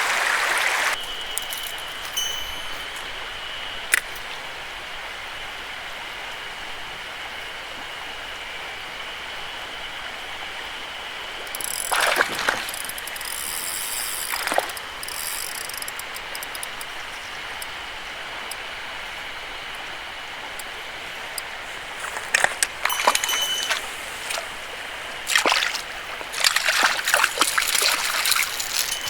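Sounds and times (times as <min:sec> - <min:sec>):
mountain stream running: 0:00.0 - 0:29.0
fishing reel clicking: 0:01.0 - 0:03.1, 0:11.4 - 0:17.7, 0:26.5 - 0:29.0.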